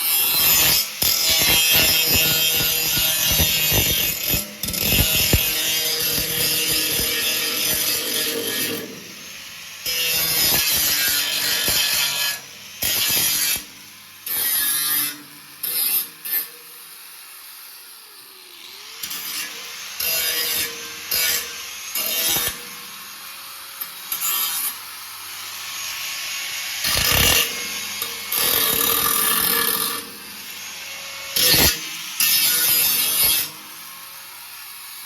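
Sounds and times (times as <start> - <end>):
metalworking noisy bursts: 0.0 - 13.6, 24.0 - 33.8.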